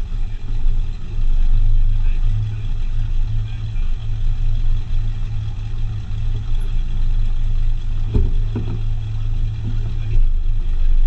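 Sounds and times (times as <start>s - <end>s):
car engine running at low revs: 0.0s - 11.0s
short knocks: 8.0s - 9.0s.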